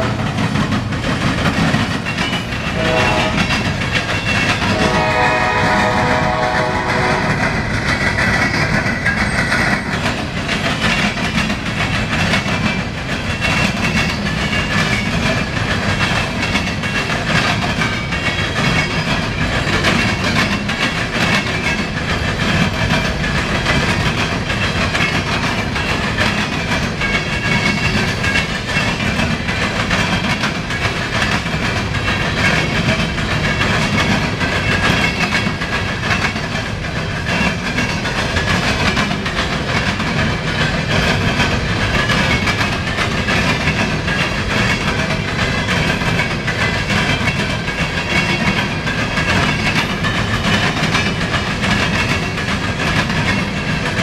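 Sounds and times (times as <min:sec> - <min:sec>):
train rumbling past: 0:00.0 - 0:54.0
wheels clacking over rail joints: 0:00.0 - 0:54.0
locomotive horn blast: 0:02.7 - 0:03.6, 0:04.6 - 0:07.6.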